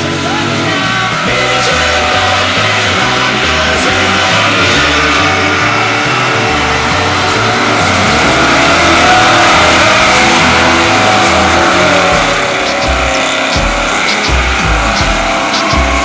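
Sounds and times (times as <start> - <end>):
car engine running hard: 0.0 - 16.0
loud rock music: 0.0 - 16.0.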